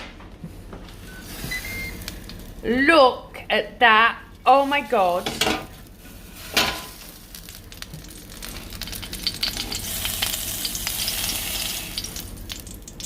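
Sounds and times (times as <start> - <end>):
chicken crackling and sizzling: 1.0 - 2.6, 5.1 - 13.0.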